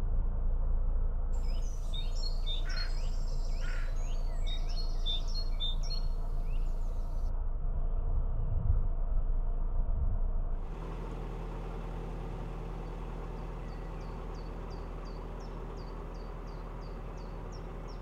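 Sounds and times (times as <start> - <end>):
boat engine rumble: 0.2 - 7.3, 9.9 - 18.0
songbirds chirping: 1.4 - 7.3, 10.7 - 18.0.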